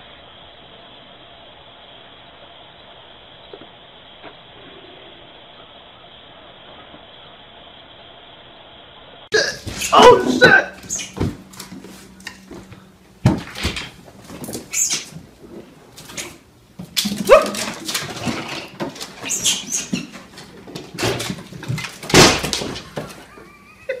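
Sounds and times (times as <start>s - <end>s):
scuffling: 9.4s - 23.4s
pet animal cries and yelps: 9.7s - 11.2s, 14.7s - 15.2s, 17.2s - 18.4s, 19.2s - 20.2s.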